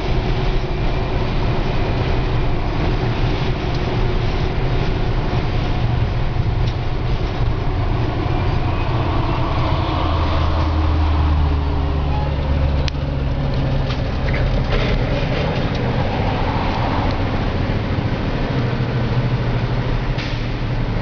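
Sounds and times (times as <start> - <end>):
road noise: 0.0 - 21.0
vehicle engine rumble: 0.0 - 21.0.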